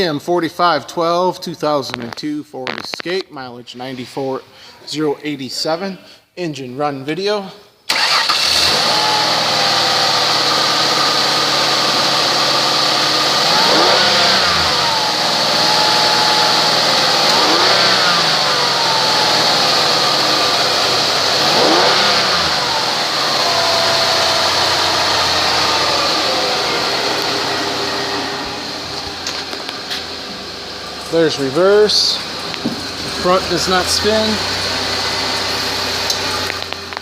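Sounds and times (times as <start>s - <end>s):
car engine revving and idling: 7.9s - 37.0s
high-pitched whine: 9.6s - 31.6s.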